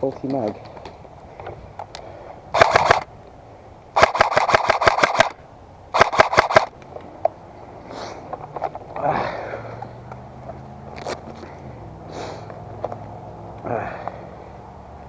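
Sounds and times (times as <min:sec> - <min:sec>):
airsoft gun full-auto bursts: 0:02.6 - 0:03.1, 0:04.0 - 0:06.7.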